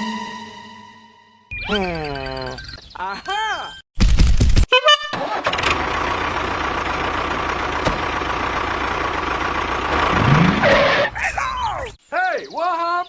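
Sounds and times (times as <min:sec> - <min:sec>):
engine starting and idling: 0:05.1 - 0:11.1.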